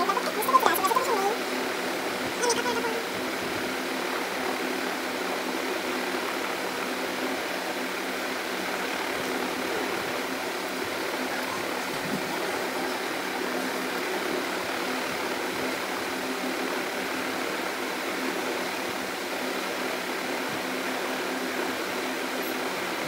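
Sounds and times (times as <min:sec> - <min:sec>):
mechanical hum with hiss: 0:00.0 - 0:23.0.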